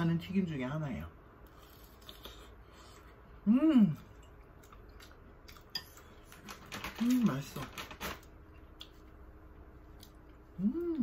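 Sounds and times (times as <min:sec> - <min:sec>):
person chewing: 0:01.4 - 0:06.4, 0:08.6 - 0:11.0
person humming mmm: 0:03.4 - 0:04.1, 0:10.5 - 0:11.0.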